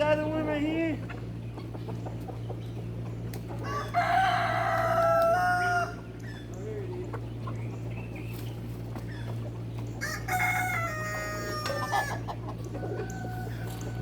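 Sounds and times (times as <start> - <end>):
steady low hum: 0.0 - 14.0
rooster crowing: 3.6 - 6.1, 10.0 - 14.0.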